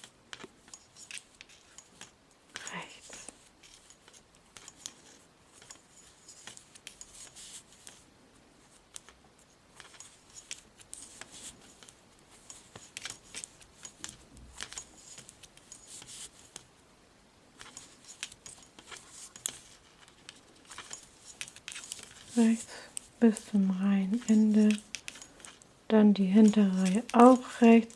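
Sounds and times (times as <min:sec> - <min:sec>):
knitting needles clicking: 0:00.3 - 0:05.8, 0:08.8 - 0:09.2, 0:09.8 - 0:16.7, 0:17.6 - 0:27.9.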